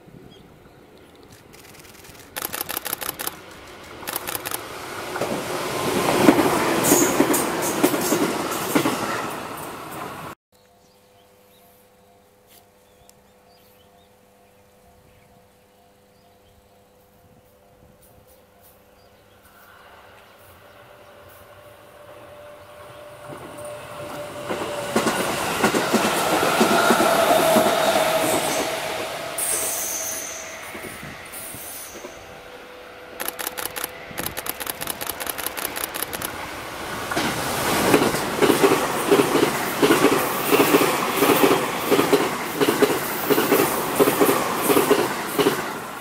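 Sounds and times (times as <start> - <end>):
train rumble: 0.6 - 10.4, 19.4 - 46.0
quick clicks: 1.0 - 4.7, 33.2 - 36.4
train wheels clickety-clack: 1.4 - 10.4, 22.9 - 29.7, 33.2 - 36.5, 37.1 - 46.0.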